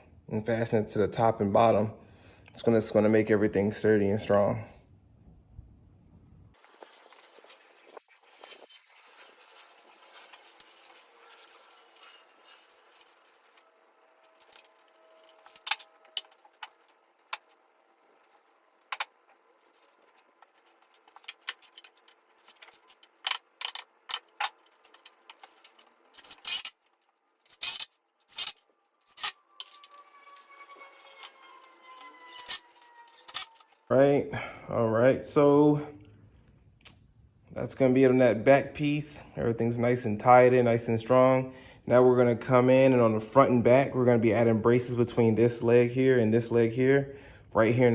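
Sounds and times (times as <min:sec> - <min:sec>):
tools and screws clattering: 0:08.2 - 0:33.8.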